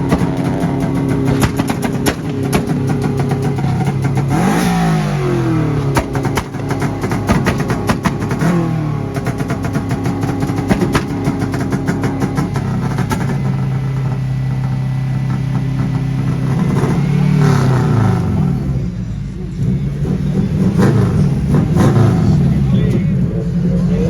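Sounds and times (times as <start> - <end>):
exhaust crackling pops: 0.0 - 4.7, 5.4 - 17.0
car engine revving: 0.0 - 24.0.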